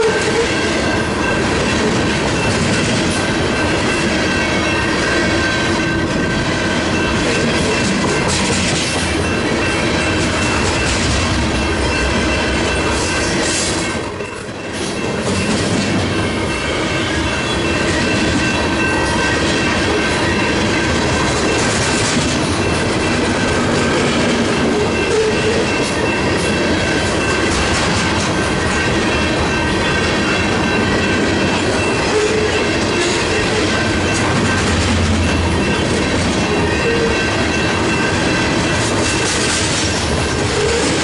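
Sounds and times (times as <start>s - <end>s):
train wheels rumbling: 0.0s - 41.0s
wheels clickety-clack over rail joints: 0.0s - 41.0s
high-pitched tones: 28.5s - 39.3s.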